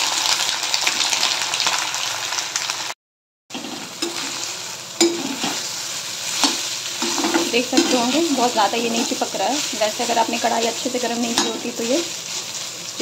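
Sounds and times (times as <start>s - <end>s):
food sizzling in oil: 0.0s - 13.0s
metal spatula scraping pan: 3.5s - 5.7s, 6.3s - 12.5s.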